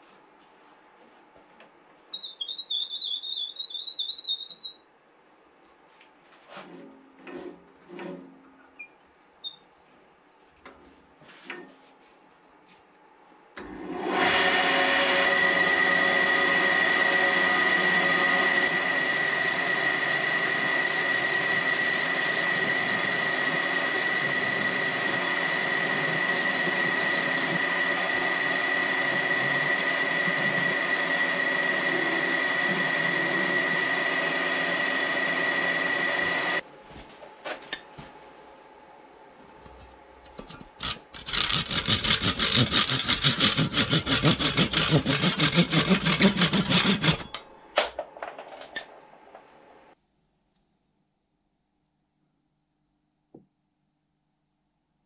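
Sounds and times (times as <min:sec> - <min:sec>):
wood lathe whining: 0:14.0 - 0:36.6, 0:41.2 - 0:47.4
handsaw sawing through wood: 0:14.5 - 0:33.8, 0:40.8 - 0:47.4.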